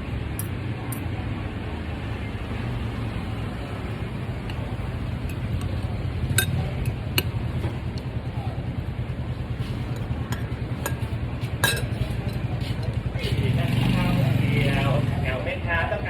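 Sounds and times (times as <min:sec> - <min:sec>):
engine humming with pulsing beat: 0:03.6 - 0:16.0
sharp clinks: 0:04.5 - 0:08.1, 0:09.9 - 0:12.5.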